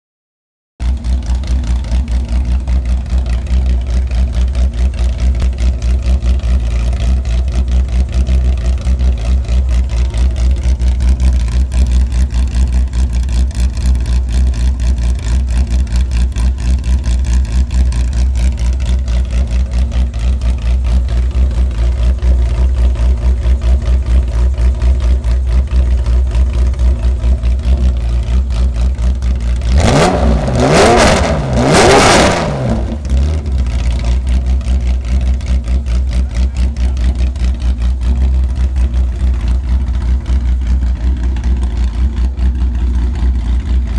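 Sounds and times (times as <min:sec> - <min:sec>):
race car engine idling: 0:00.8 - 0:31.8, 0:32.4 - 0:43.9.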